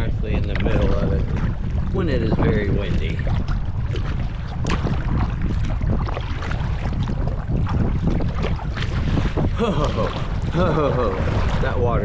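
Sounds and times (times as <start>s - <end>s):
waves splashing against kayak: 0.0s - 12.0s
wind buffeting microphone: 0.0s - 12.0s.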